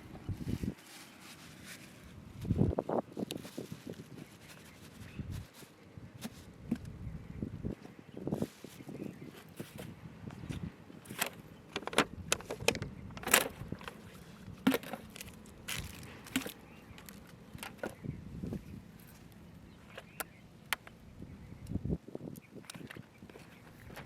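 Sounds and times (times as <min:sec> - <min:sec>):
low steady background noise: 0:00.0 - 0:24.0
sharp irregular clicks and knocks: 0:11.1 - 0:14.0.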